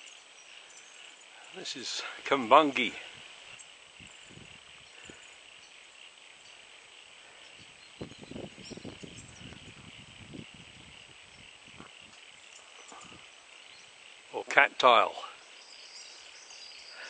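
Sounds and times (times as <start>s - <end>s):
high-pitched insect chorus: 0.0s - 17.0s
rustling in vegetation: 0.0s - 17.0s.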